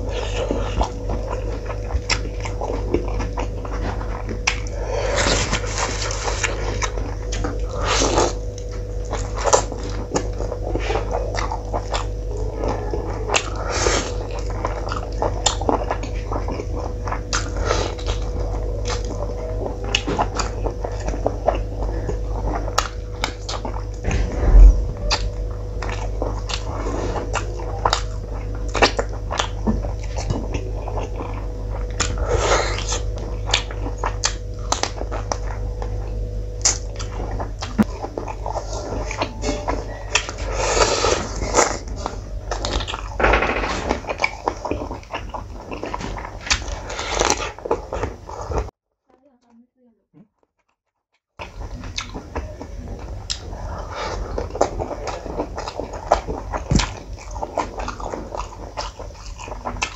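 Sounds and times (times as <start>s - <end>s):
chewing and lip-smacking: 0.0s - 48.7s, 51.4s - 59.9s
steady low hum: 0.0s - 48.8s, 51.4s - 59.9s
heavy low thump: 24.0s - 26.0s.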